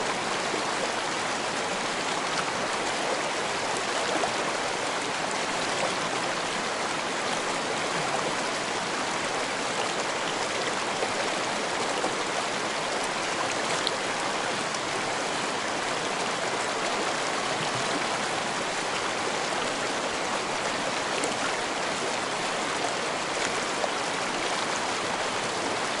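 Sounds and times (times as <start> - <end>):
stream rushing over rocks: 0.0 - 26.0.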